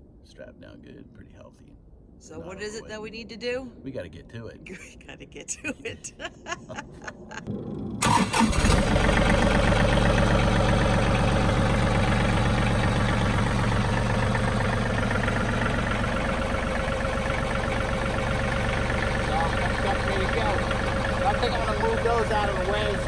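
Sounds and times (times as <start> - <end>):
diesel tractor engine starting: 7.5 - 23.0
tractor engine idling: 8.0 - 23.0.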